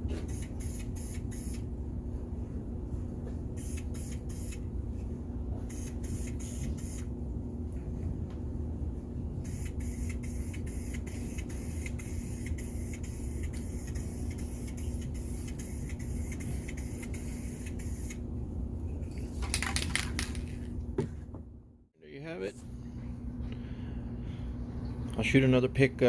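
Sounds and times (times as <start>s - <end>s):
steady low hum: 0.0s - 26.0s
aerosol spray can hissing: 3.6s - 4.6s, 9.5s - 18.2s.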